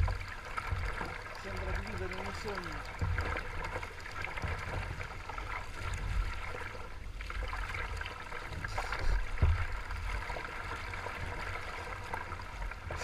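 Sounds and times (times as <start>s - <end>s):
water lapping against kayak hull: 0.0s - 13.0s
knock on hull: 2.7s - 3.6s, 9.0s - 9.9s.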